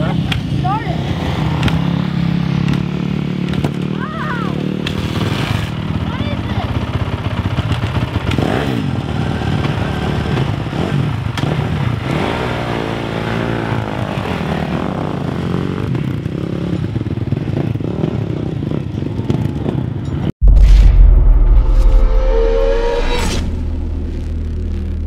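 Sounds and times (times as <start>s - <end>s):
motocross bike engine revving: 8.3s - 16.8s.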